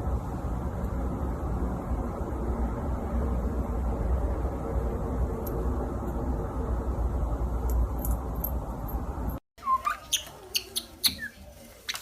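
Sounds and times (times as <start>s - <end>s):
steady low rumbling: 0.0s - 9.4s
bird chirp: 9.6s - 12.0s.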